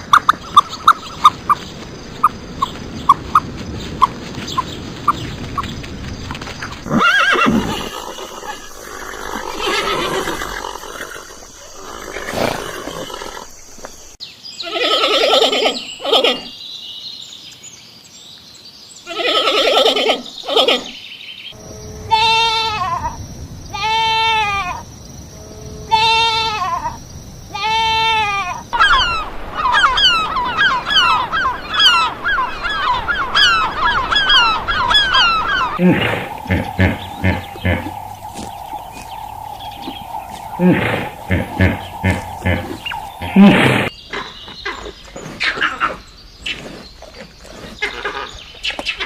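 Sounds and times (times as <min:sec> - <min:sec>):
animal calls rising and falling: 0:06.9 - 0:13.5, 0:27.6 - 0:43.9
harsh bleats: 0:22.1 - 0:23.1, 0:23.7 - 0:24.8, 0:25.9 - 0:26.9, 0:27.5 - 0:28.6
geese honking: 0:28.8 - 0:43.8.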